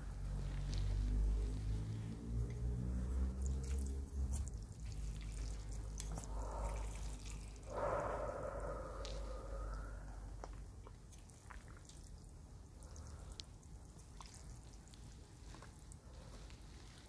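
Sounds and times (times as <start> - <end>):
low rumble: 0.0 - 10.9
wet eating sounds: 0.0 - 17.0
slurping noodles: 2.2 - 10.6.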